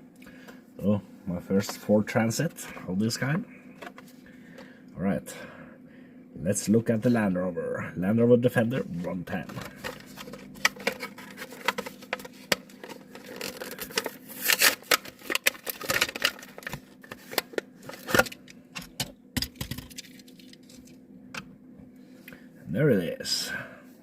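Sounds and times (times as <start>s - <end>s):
plastic packaging crackling and tearing: 9.4s - 18.5s.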